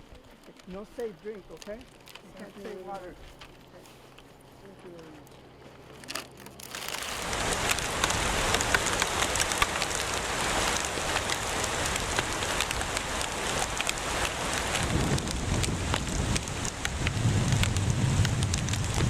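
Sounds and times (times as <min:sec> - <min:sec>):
hailstones clattering: 0:00.0 - 0:03.1, 0:06.1 - 0:19.0
rain hiss: 0:06.7 - 0:19.0.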